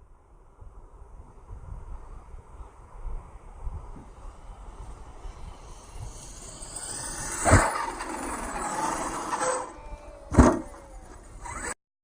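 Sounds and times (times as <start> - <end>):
tyres on the ground: 3.8 - 11.8
rc car motor whining: 4.1 - 11.8.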